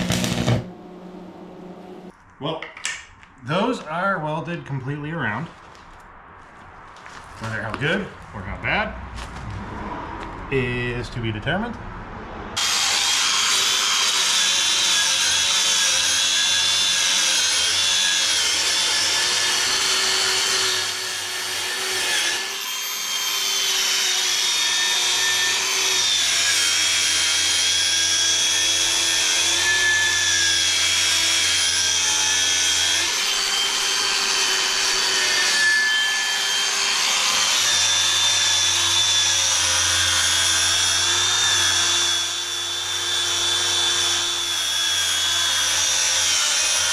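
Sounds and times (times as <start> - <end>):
angle grinder on steel: 0.0 - 2.1, 12.6 - 46.9.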